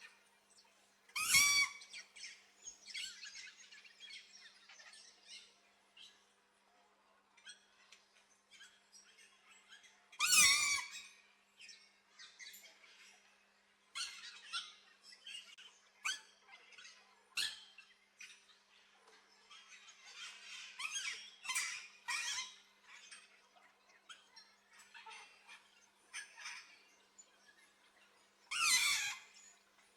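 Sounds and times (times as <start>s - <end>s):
birds chirping and calling: 1.2s - 6.1s, 19.5s - 29.9s
harsh bird squawk: 28.5s - 29.4s.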